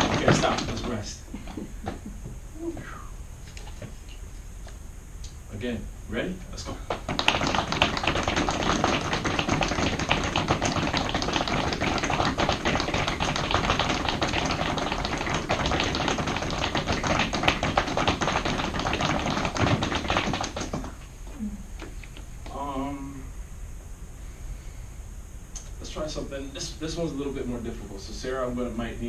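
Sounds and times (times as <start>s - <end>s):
feet tapping on floor: 0.0s - 2.9s, 6.9s - 21.0s.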